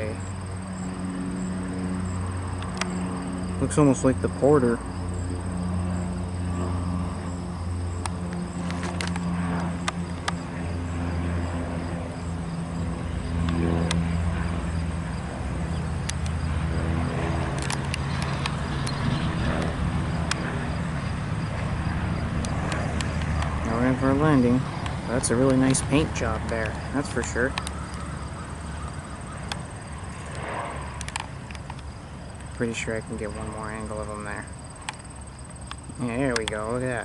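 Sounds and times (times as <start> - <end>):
insects trilling: 0.0 - 37.0
low engine drone: 0.0 - 37.0
sharp clicks: 2.6 - 3.0, 8.0 - 10.5, 16.0 - 16.4, 17.5 - 20.5, 22.4 - 23.7, 24.7 - 28.1, 28.8 - 33.4, 34.8 - 36.8.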